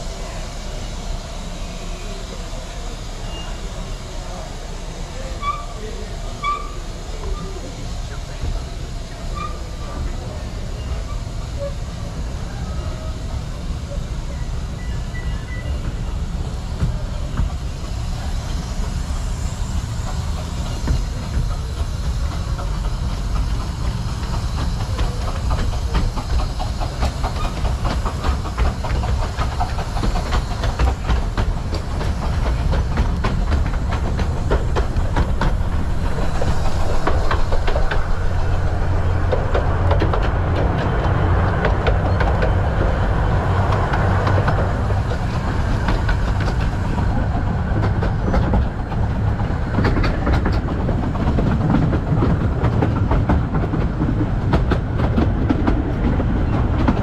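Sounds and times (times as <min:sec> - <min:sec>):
miniature train rumbling: 0:00.0 - 0:57.0.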